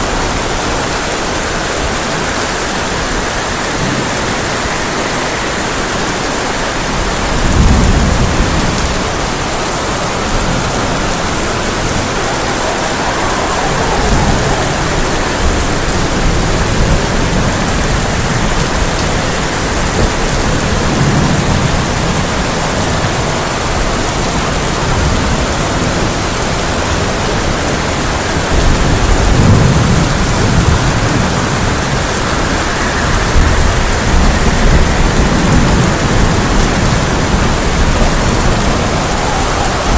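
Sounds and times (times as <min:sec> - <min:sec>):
heavy rain on a tin roof: 0:00.0 - 0:39.9
thunder rumbling: 0:00.0 - 0:39.9.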